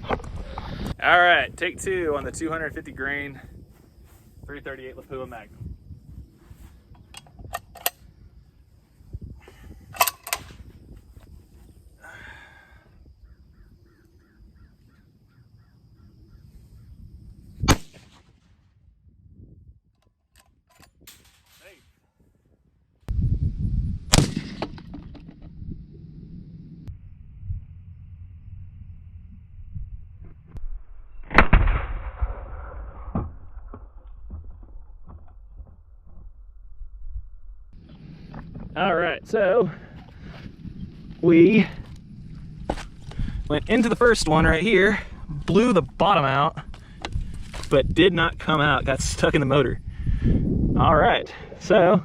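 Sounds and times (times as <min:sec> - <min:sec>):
loud rifle shot: 0:17.6 - 0:18.4, 0:24.1 - 0:24.9, 0:31.2 - 0:33.4.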